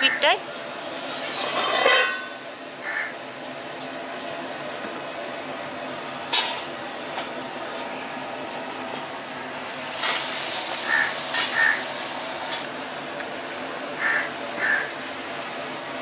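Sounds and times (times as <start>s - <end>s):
bread frying in hot oil: 0.6s - 4.4s, 5.2s - 16.0s
crows cawing: 2.8s - 3.2s, 10.8s - 12.0s, 14.0s - 15.0s.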